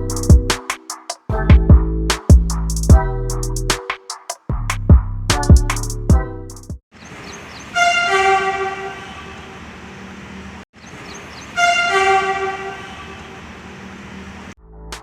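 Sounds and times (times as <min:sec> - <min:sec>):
train horn blasts: 0:07.8 - 0:09.6, 0:11.6 - 0:13.4.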